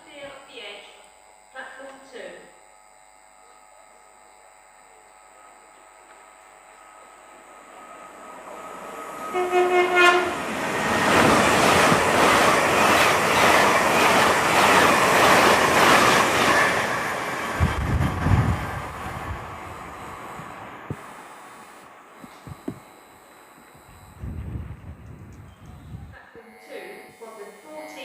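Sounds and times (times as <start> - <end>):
train passing with clattering wheels: 7.9 - 20.9
train horn blast: 9.0 - 11.1.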